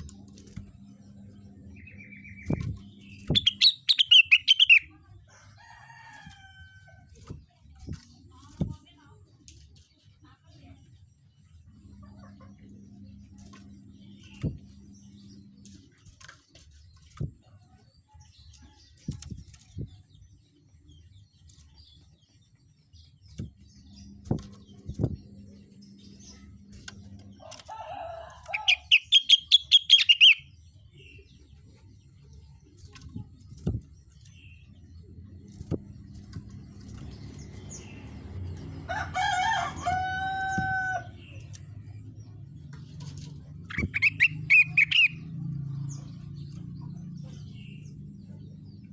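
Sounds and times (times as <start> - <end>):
low hum: 0.0 - 9.6, 11.1 - 22.4, 23.0 - 48.9
songbird chattering: 1.2 - 5.1, 27.8 - 33.3, 39.1 - 45.3.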